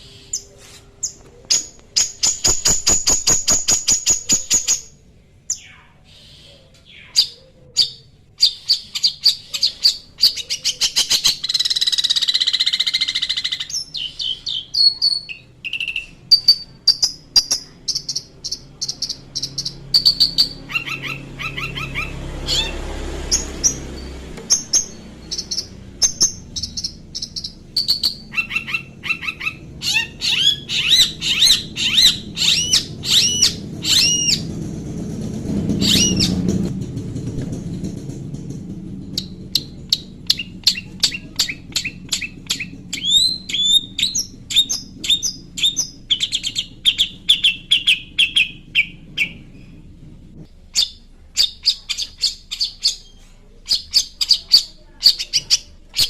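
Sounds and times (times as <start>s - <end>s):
shrike singing chirps and whistles: 0.0s - 34.5s, 35.8s - 36.4s, 39.2s - 49.6s, 50.8s - 56.0s.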